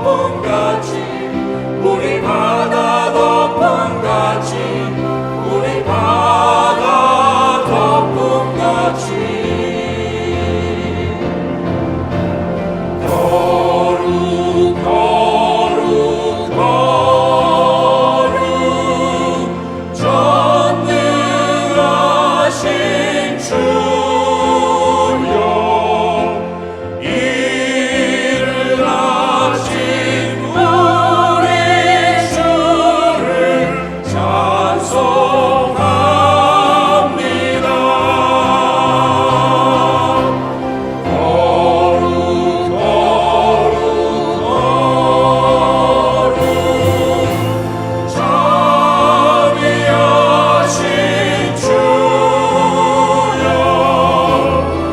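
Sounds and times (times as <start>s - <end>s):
church choir singing: 0.0s - 54.9s
sustained low accompaniment: 0.0s - 54.9s.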